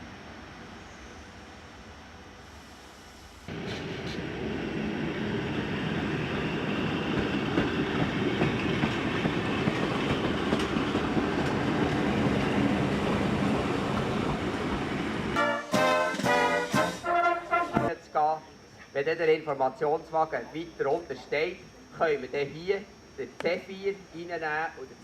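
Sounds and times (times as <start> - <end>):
train running on rails: 0.0 - 17.9.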